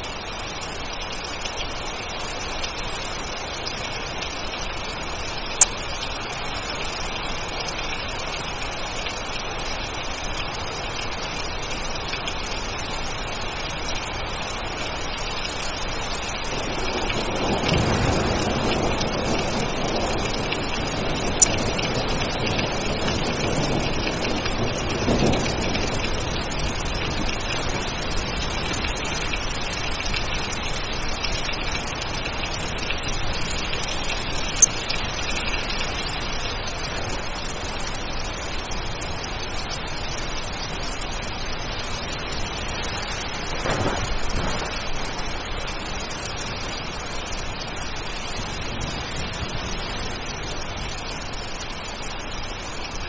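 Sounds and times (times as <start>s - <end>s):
heavy rain: 0.0s - 53.0s
low thunder rumbling: 15.6s - 37.8s, 41.5s - 51.6s.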